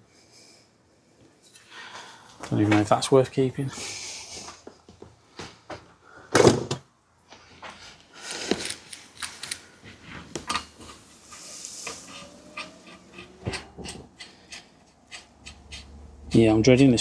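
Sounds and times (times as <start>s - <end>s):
tools knocking and clattering on workbench: 12.6s - 16.4s.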